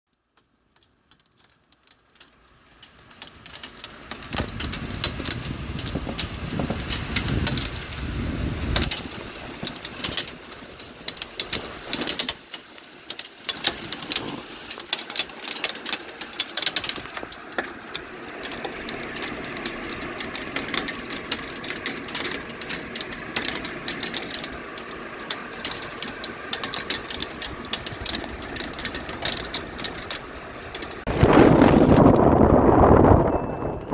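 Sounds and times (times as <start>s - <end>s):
hailstones ticking on hard surfaces: 0.7s - 31.1s
wind buffeting microphone: 4.0s - 9.8s, 18.3s - 33.9s.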